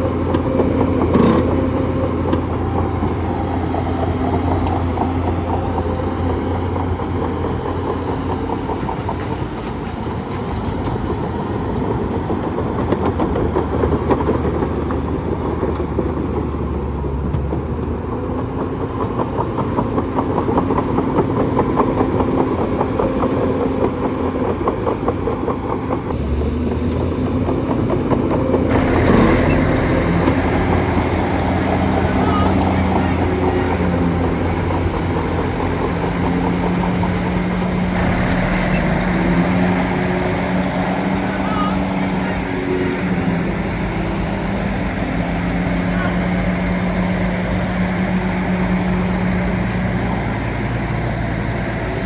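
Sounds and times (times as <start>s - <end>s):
bulldozer diesel engine running: 0.0s - 52.0s
fast mechanical rattle: 27.4s - 42.0s.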